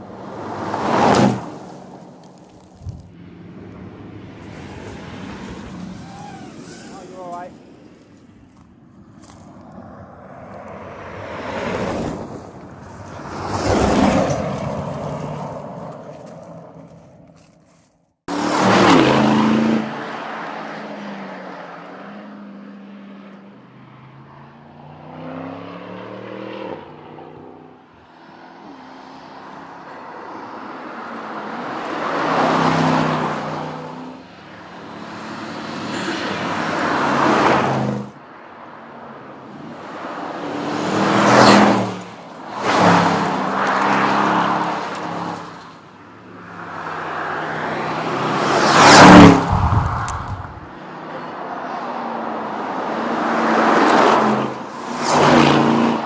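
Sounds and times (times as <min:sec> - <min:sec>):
car engine and exhaust accelerating: 0:00.0 - 0:17.6, 0:18.3 - 0:38.1, 0:39.5 - 0:56.0.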